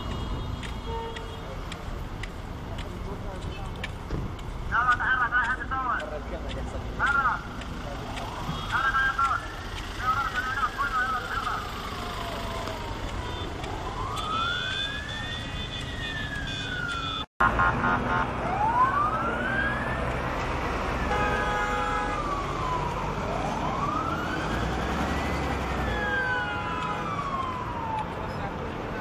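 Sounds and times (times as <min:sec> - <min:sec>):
car horns: 0:00.0 - 0:01.6, 0:08.5 - 0:09.3, 0:13.2 - 0:17.3, 0:21.0 - 0:22.4
emergency siren wailing: 0:08.2 - 0:17.3, 0:18.1 - 0:29.0.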